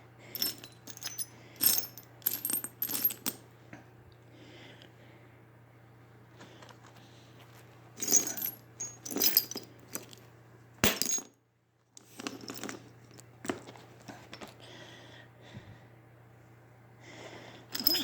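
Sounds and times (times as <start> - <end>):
steel bolts and nuts clinking: 0.4 - 3.4, 8.0 - 10.2, 17.8 - 18.0.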